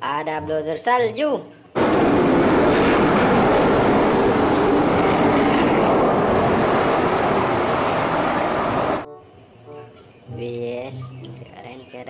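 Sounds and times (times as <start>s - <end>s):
water jet spraying: 1.8s - 9.0s.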